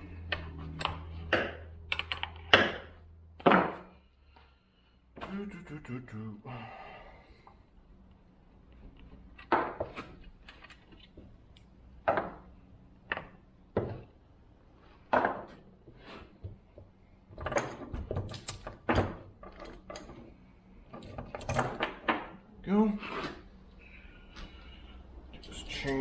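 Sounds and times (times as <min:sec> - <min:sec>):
metal clicks and knocks: 0:00.3 - 0:03.8.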